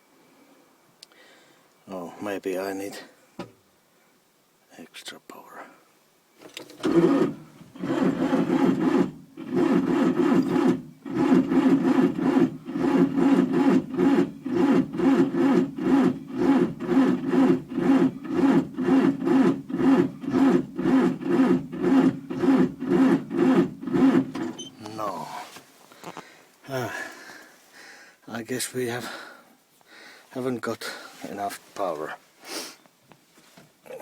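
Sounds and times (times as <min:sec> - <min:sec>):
starter cranking diesel engine: 0:06.6 - 0:25.2.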